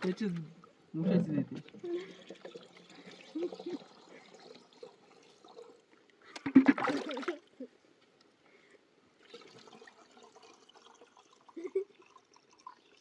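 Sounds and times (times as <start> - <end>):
faint water trickle: 0.0 - 13.0
water splashing and pouring: 1.8 - 5.8, 6.4 - 7.5, 9.2 - 13.0.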